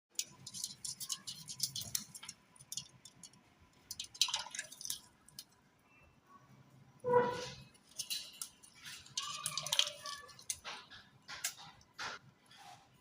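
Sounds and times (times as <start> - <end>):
parrot clicking and crackling: 0.1 - 5.7, 7.6 - 12.2.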